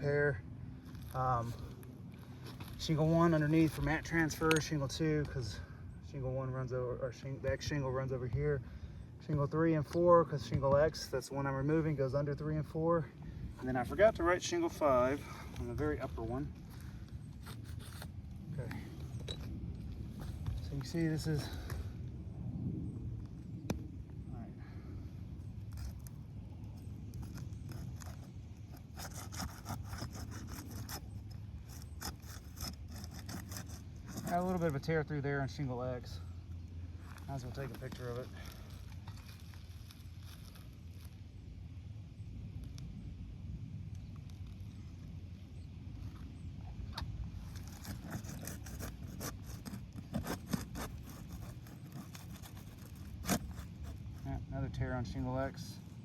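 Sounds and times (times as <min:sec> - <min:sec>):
steady low rumble: 0:00.0 - 0:56.0
shingles scraping and crackling: 0:25.6 - 0:34.9, 0:47.4 - 0:54.5
roof shingles scraping and crackling: 0:37.0 - 0:41.2, 0:47.4 - 0:54.5.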